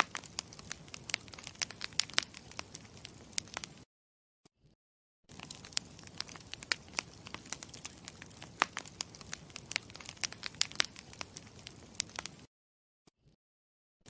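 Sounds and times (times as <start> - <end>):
campfire crackling and popping: 0.0 - 3.8, 5.3 - 12.5.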